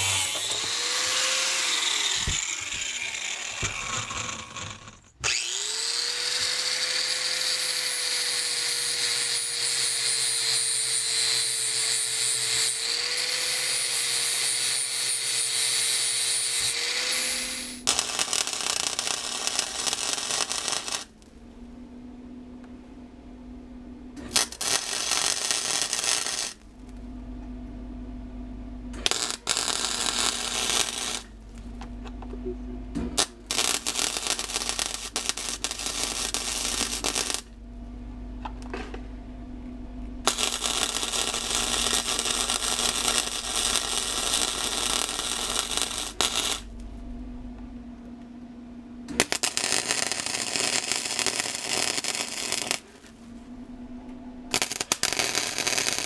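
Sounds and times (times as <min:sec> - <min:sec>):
steady hum: 0:00.0 - 0:05.3, 0:16.6 - 0:56.0
welder crackling: 0:00.0 - 0:21.4, 0:24.2 - 0:27.0, 0:29.0 - 0:31.8, 0:33.2 - 0:37.6, 0:40.2 - 0:46.9, 0:49.1 - 0:53.2, 0:54.5 - 0:56.0.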